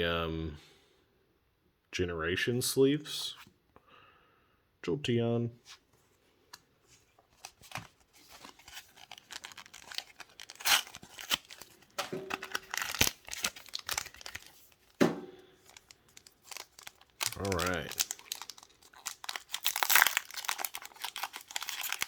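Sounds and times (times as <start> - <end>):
thin plastic crinkling: 6.9 - 22.0.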